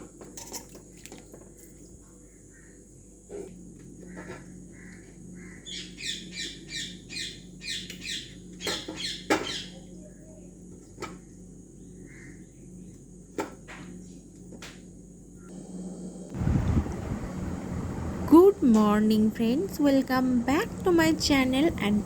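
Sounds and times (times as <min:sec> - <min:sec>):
faint low hum: 0:15.2 - 0:22.0.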